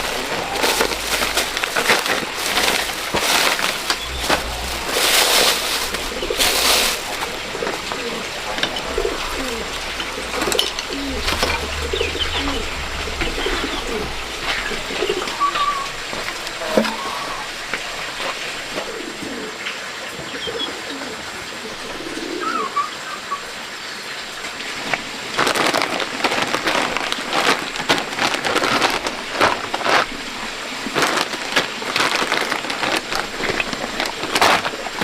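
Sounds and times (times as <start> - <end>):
rustling and handling noises: 0.0 - 19.0, 24.8 - 35.0
pigeons cooing: 0.0 - 23.7.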